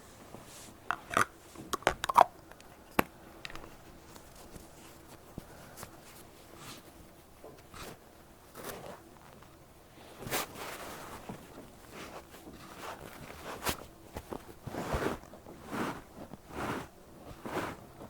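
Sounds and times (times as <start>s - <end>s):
cotton pad rubbing over ear: 10.3s - 18.0s.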